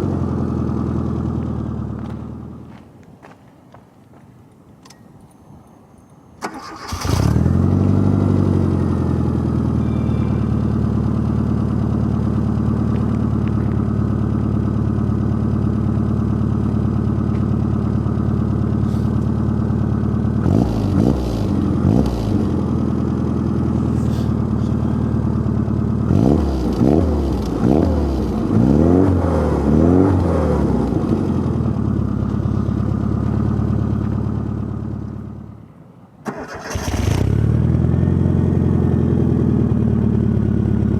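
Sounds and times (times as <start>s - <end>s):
car engine starting and idling: 0.0s - 2.7s, 6.4s - 40.9s
engine revving: 6.5s - 11.2s, 20.3s - 31.8s, 36.3s - 38.4s.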